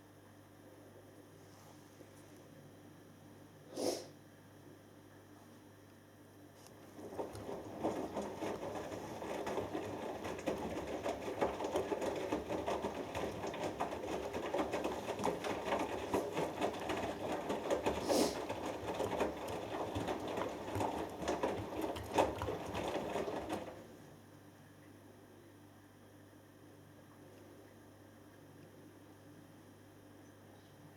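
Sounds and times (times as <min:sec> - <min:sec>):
washing machine drum tumbling: 0:06.8 - 0:23.9
faint hum: 0:24.0 - 0:30.9.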